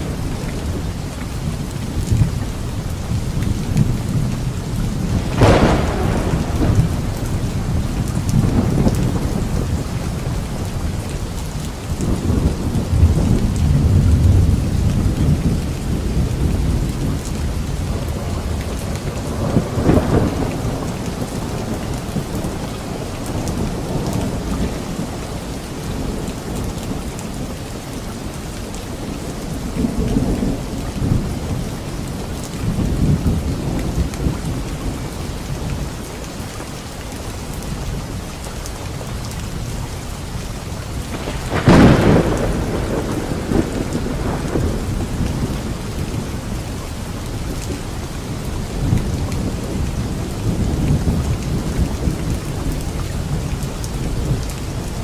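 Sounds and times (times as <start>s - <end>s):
light rain on leaves: 0.0s - 55.0s
thunder rolling: 2.0s - 11.0s, 12.0s - 25.2s, 41.0s - 46.7s.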